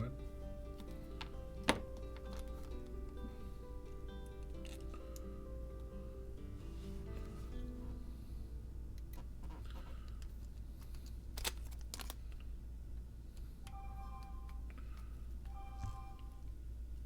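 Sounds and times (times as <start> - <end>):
background music: 0.0 - 9.8, 13.7 - 14.9, 15.5 - 16.5
low steady hum: 0.0 - 17.0.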